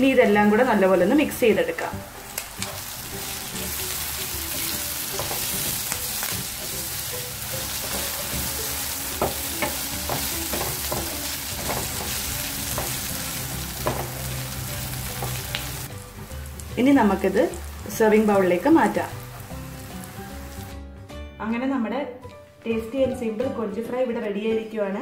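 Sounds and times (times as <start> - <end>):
prawns sizzling in oil: 0.4 - 20.8
wooden spatula scraping and tapping pan: 9.2 - 13.1.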